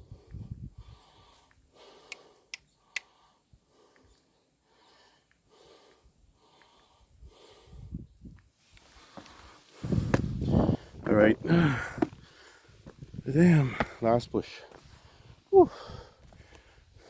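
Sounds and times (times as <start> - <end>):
sharp clicks: 1.5 - 3.2
man panting: 3.1 - 8.0, 9.0 - 17.0.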